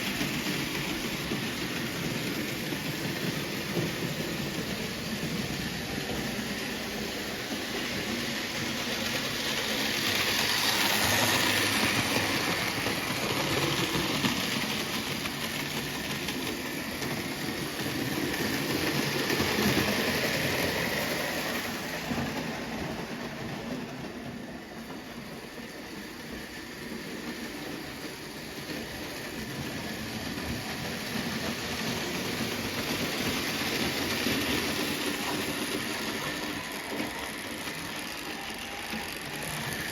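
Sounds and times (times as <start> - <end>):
model train running on metal track: 0.0 - 39.9.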